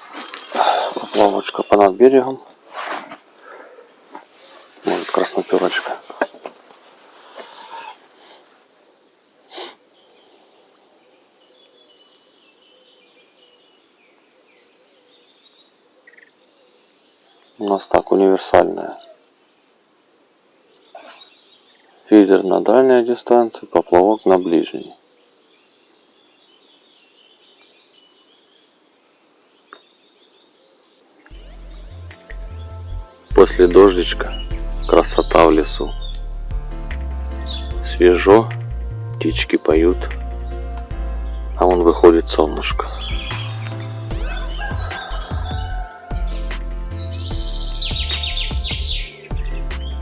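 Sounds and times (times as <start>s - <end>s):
birds singing faintly: 0.0s - 2.6s, 4.8s - 50.0s
faint songbirds chirping: 0.0s - 2.6s, 7.2s - 50.0s
steady background hiss: 0.0s - 44.7s, 45.7s - 50.0s
brief swish of noise: 0.4s - 1.6s, 2.6s - 3.2s
background music: 31.3s - 50.0s.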